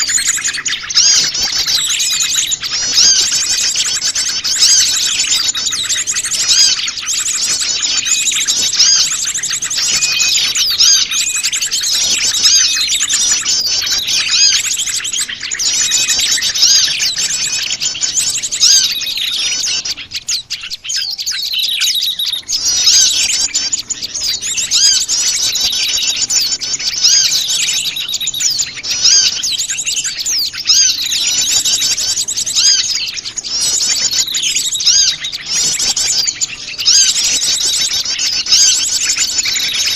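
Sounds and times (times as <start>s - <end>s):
chorus of small birds chirping: 0.0s - 39.9s.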